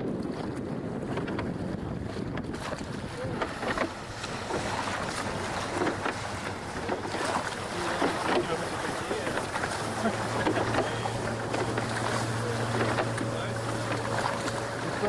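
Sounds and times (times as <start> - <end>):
water splashing along hull: 0.0 - 15.0
wind buffeting microphone: 0.0 - 15.0.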